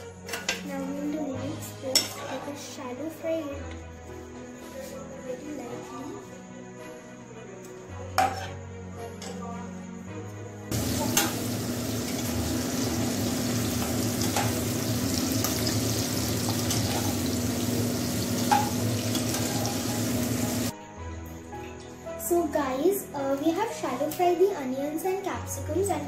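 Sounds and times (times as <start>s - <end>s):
background music: 0.0s - 26.0s
spatula scraping and knocking pan: 10.7s - 12.3s, 13.6s - 17.4s, 18.4s - 20.0s
vegetables sizzling in hot oil: 10.7s - 20.7s.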